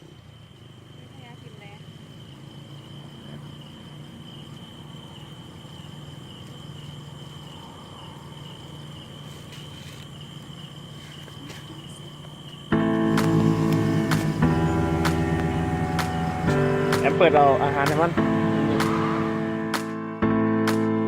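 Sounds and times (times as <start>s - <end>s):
high-pitched insect drone: 0.0s - 20.0s
low hum: 12.7s - 19.9s.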